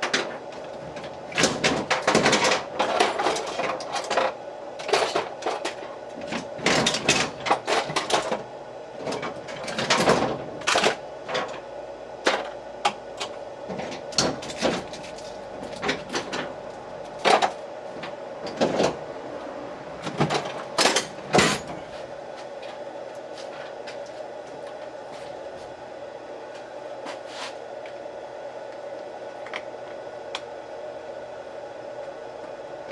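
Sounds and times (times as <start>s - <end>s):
tools clattering and knocking: 0.0s - 8.4s, 20.0s - 22.0s
faint steady hum: 0.0s - 32.9s.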